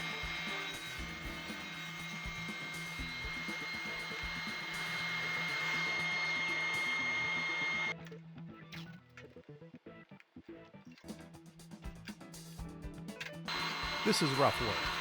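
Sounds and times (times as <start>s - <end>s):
table saw cutting wood: 0.0s - 7.9s, 13.5s - 15.0s
background music: 0.0s - 15.0s.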